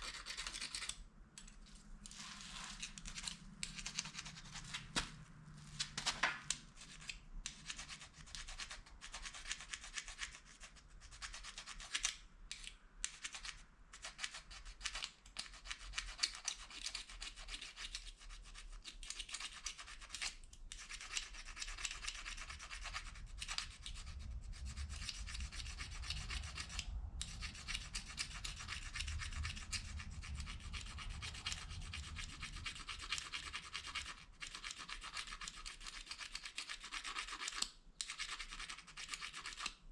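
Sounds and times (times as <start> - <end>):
plastic fork scraping a spoon: 0.0 - 5.0.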